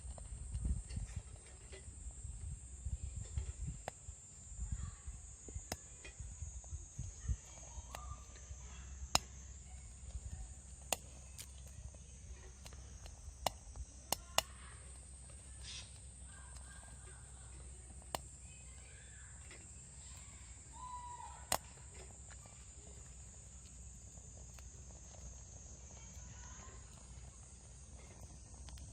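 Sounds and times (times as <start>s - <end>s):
insect drone: 0.0s - 28.9s
twigs snapping and crackling in stove: 0.0s - 28.9s
bird calls: 13.7s - 22.6s.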